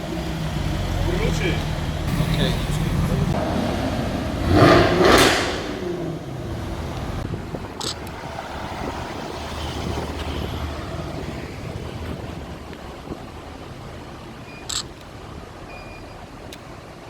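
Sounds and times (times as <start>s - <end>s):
car driving past: 0.0s - 12.6s
street traffic: 0.0s - 17.0s.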